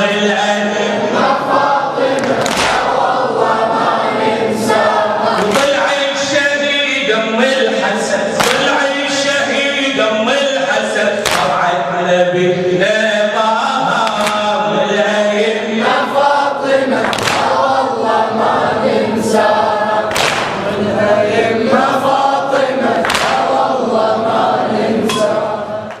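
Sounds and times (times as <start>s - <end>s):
men chanting together: 0.0s - 26.0s
chest-beating slaps: 2.1s - 3.0s, 5.4s - 5.8s, 8.4s - 8.7s, 11.2s - 11.6s, 17.0s - 17.6s, 20.1s - 20.6s, 23.0s - 23.5s.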